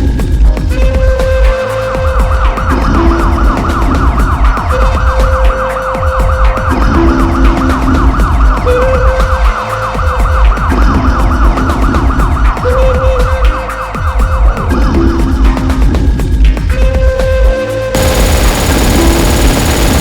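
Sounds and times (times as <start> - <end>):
heavy bass: 18.0 - 20.0
siren-like synth sweep: 18.0 - 20.0.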